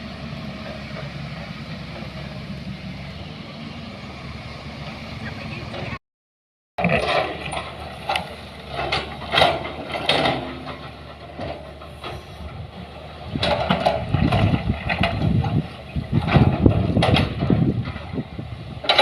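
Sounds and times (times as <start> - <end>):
vehicle engine running: 0.0 - 6.0
clanks and rattles: 6.8 - 12.6, 13.2 - 19.0.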